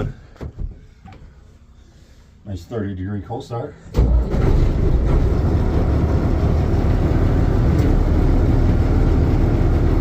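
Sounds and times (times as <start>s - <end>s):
diesel engine rumbling: 3.7s - 10.0s.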